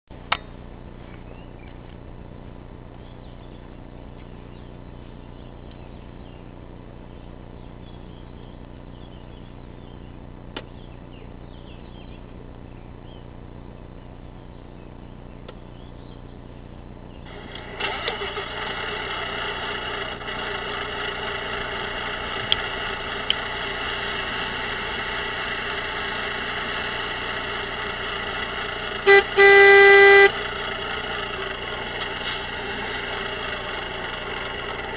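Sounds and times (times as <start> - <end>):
diesel truck engine running: 0.1 - 34.9
engine starting: 17.3 - 21.6
short horn toots: 29.1 - 30.4.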